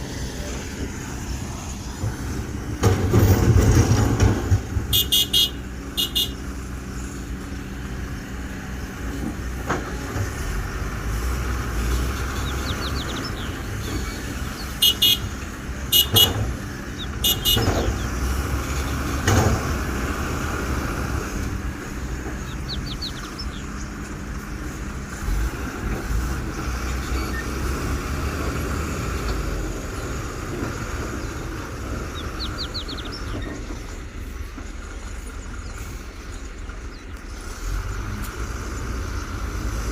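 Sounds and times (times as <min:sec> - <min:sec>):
excavator diesel engine running: 0:00.0 - 0:39.9
horn toots: 0:04.9 - 0:06.5, 0:14.8 - 0:16.5, 0:17.2 - 0:18.0.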